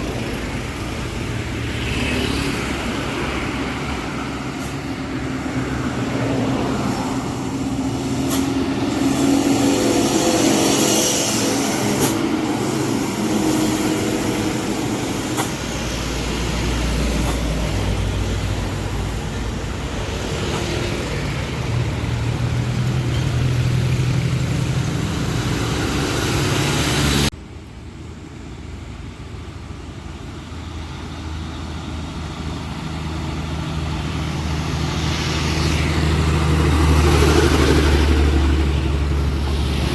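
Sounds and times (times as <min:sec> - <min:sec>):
passing traffic: 0:00.0 - 0:39.9
truck diesel engines labouring: 0:00.0 - 0:39.9.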